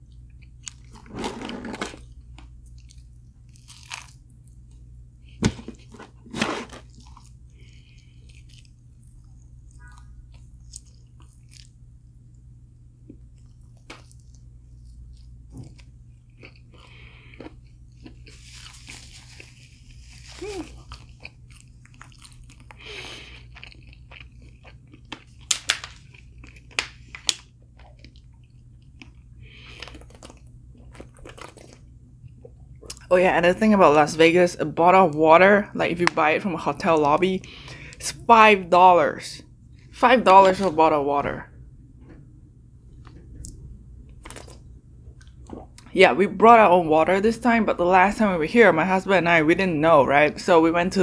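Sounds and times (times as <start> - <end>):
steady low hum: 0.0 - 51.0
person crunching crispy food: 2.6 - 4.5, 13.4 - 32.4, 44.2 - 44.6.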